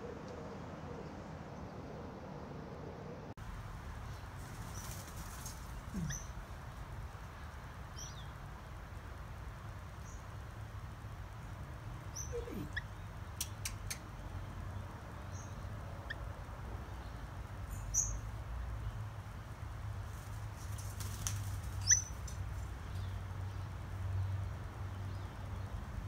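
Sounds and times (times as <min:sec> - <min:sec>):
bird chirping: 0:04.0 - 0:06.5, 0:07.4 - 0:08.4, 0:12.1 - 0:16.3, 0:16.9 - 0:19.0, 0:20.8 - 0:25.8.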